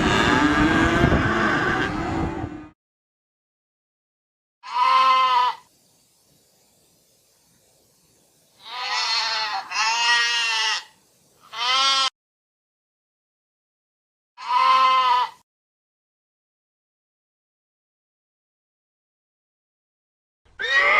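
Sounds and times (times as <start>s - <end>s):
goat bleating: 4.6s - 5.6s, 8.6s - 12.1s, 14.4s - 15.4s, 20.6s - 20.9s.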